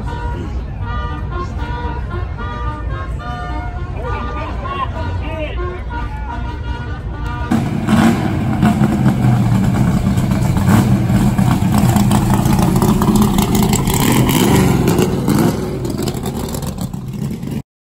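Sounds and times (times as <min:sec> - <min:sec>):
car engine revving: 0:07.5 - 0:17.6.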